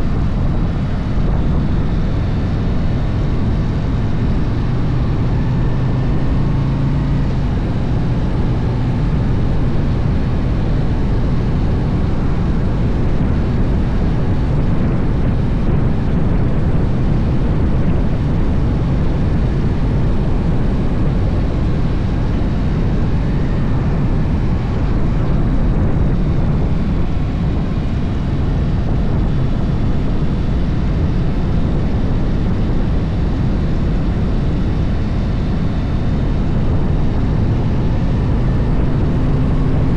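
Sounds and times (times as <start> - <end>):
motorcycle engine rumbling: 0.0 - 39.9
wind rushing over microphone: 0.0 - 39.9.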